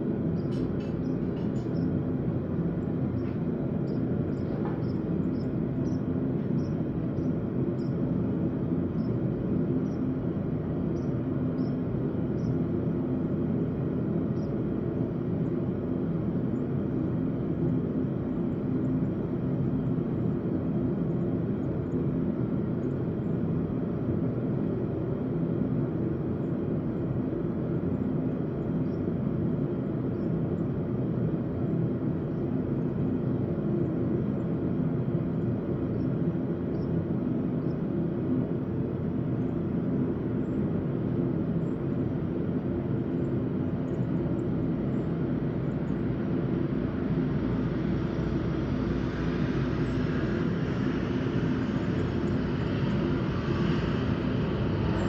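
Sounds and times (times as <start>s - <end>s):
forge hissing: 46.6s - 55.0s.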